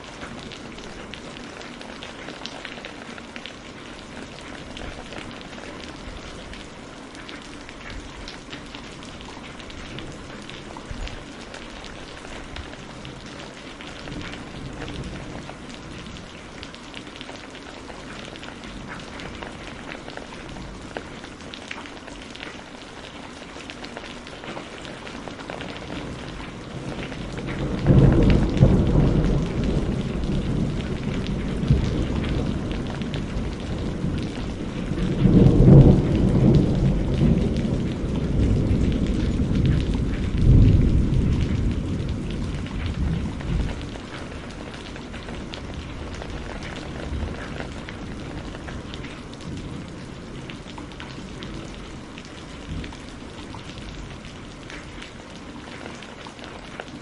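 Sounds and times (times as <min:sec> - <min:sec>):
steady rainfall: 0:00.0 - 0:57.0
thunder rumbling: 0:25.6 - 0:54.5.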